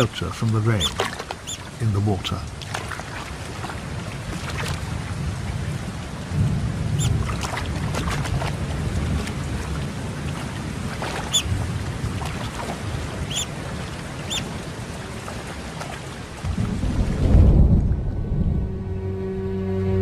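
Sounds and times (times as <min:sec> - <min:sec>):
steady rain falling: 0:00.0 - 0:20.0
thunder rolling: 0:16.4 - 0:19.4.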